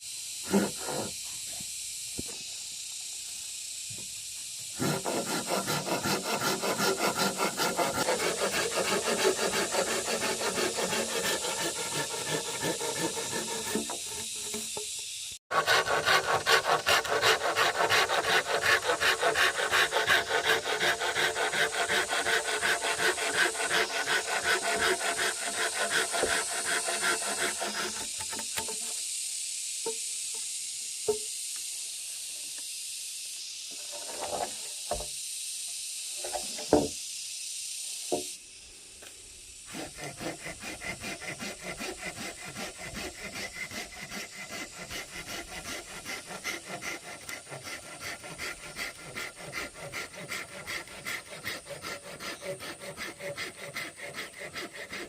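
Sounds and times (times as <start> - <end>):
hand tool rasping bamboo: 0.5 - 1.2, 4.8 - 28.9, 39.7 - 55.0.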